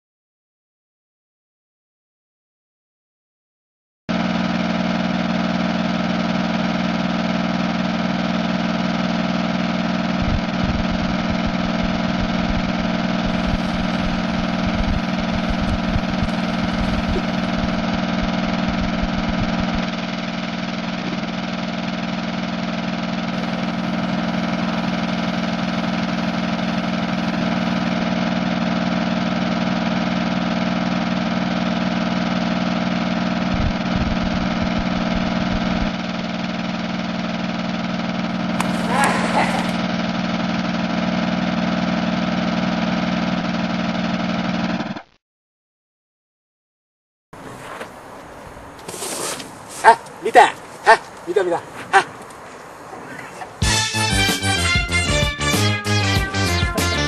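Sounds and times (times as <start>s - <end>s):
mechanical drone: 10.1s - 29.9s, 33.4s - 36.1s.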